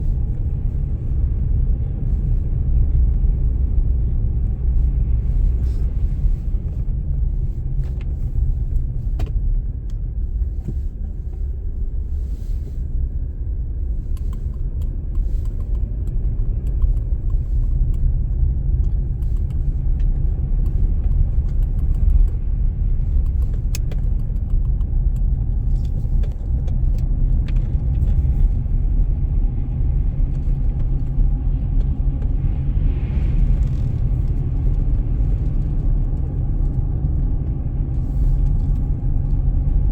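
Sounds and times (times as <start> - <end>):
car driving on snowy road: 0.0 - 39.9
light clicks and ticks: 13.8 - 28.6.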